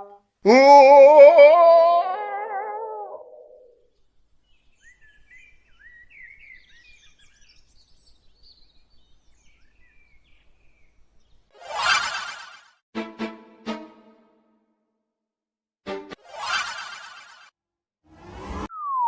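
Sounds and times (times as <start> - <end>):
faint birds chirping: 3.6 - 11.5.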